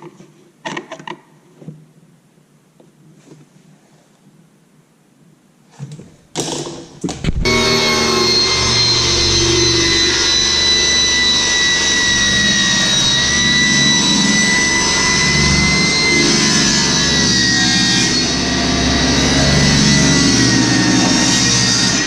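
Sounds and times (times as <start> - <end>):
electric motor whining: 7.4 - 22.0.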